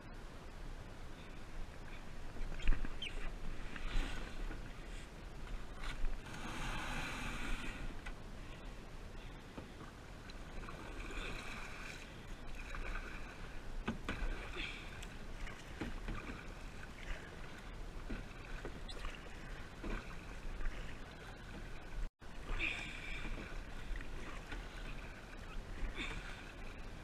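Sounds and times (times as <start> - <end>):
paddle splashing in water: 9.6 - 27.0.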